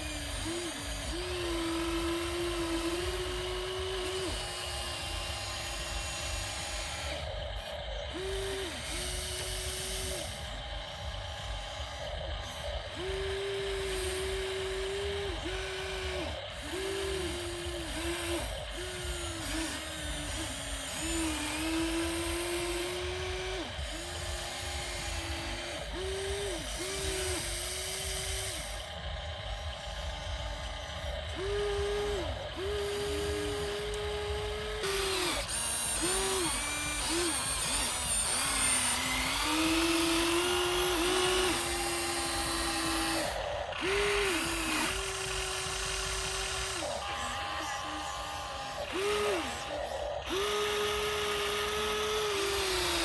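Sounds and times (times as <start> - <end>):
toy gear motors whining: 0.0 - 53.0.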